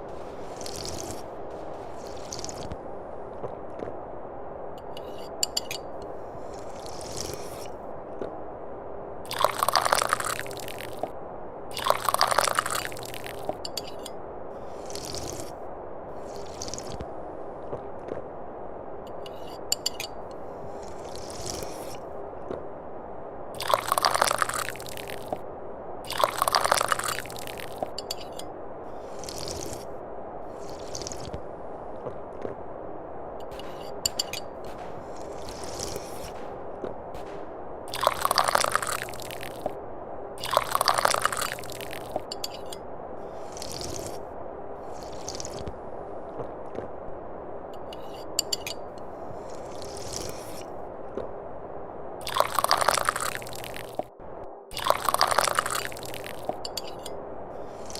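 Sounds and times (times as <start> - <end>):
steady low background noise: 0.0 - 57.9
person slurping tea: 0.1 - 2.8, 6.4 - 7.8, 9.3 - 11.0, 11.7 - 13.5, 14.6 - 15.6, 16.2 - 17.0, 20.7 - 22.0, 23.6 - 25.3, 26.1 - 27.8, 29.0 - 29.9, 30.5 - 31.4, 35.0 - 36.5, 37.9 - 39.7, 40.4 - 45.7, 49.4 - 50.7, 52.2 - 54.0, 54.7 - 57.1.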